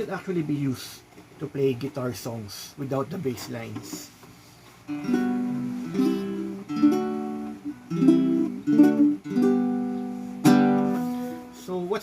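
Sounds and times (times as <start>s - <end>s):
ukulele chords strummed: 4.9s - 11.7s.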